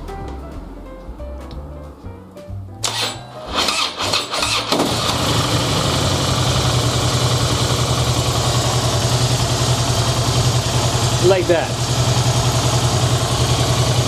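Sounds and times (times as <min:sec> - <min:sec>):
motorcycle engine idling: 0:00.0 - 0:14.0
electric starter cranking: 0:02.8 - 0:14.0.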